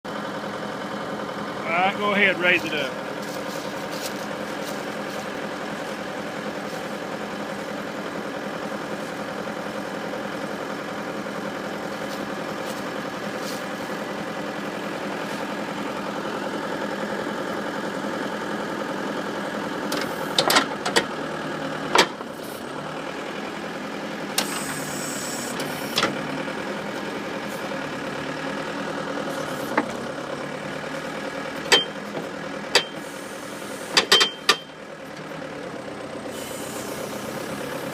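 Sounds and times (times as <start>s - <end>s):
diesel engine running: 0.0s - 37.9s
sharp metallic clanks: 33.9s - 34.7s.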